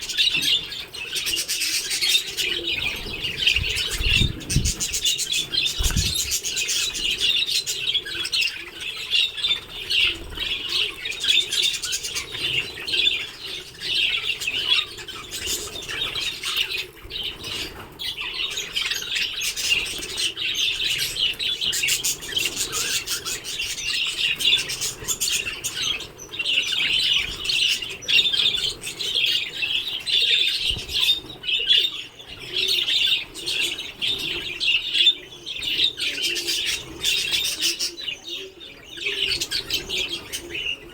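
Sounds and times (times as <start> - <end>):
budgerigars chattering: 0.0 - 40.9
wings flapping: 2.4 - 7.3.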